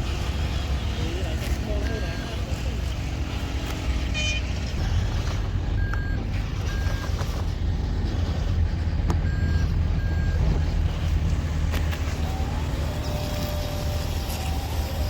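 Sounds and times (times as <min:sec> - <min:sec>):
low engine drone: 0:00.0 - 0:15.0
truck reversing alarm beeps: 0:01.6 - 0:02.9, 0:04.1 - 0:07.6, 0:09.1 - 0:11.1.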